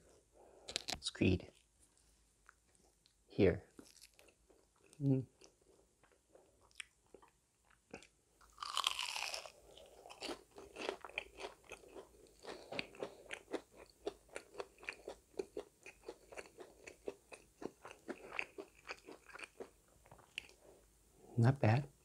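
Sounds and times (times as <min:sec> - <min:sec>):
crunchy chewing: 0:03.8 - 0:20.7
loud bite crunch: 0:08.0 - 0:17.0.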